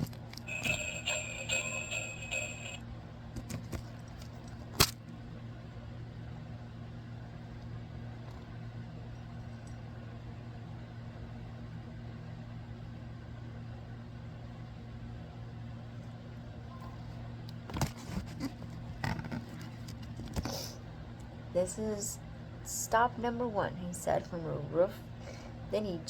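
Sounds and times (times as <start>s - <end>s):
steady low hum: 0.0s - 26.0s
sleigh bell jingle from small speaker: 0.4s - 2.8s.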